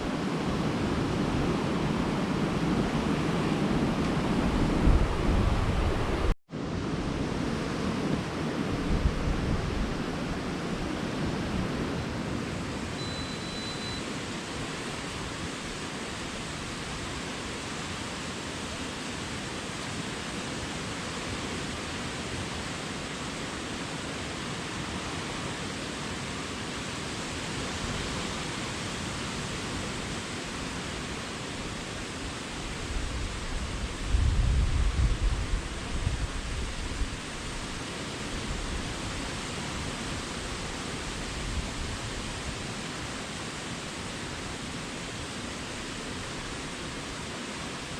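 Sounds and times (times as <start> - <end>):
short faint high tone: 12.9 - 14.1.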